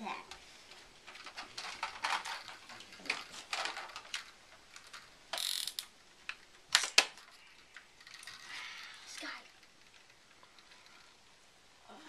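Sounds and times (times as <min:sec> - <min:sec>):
plastic toy parts clicking: 0:01.1 - 0:08.5.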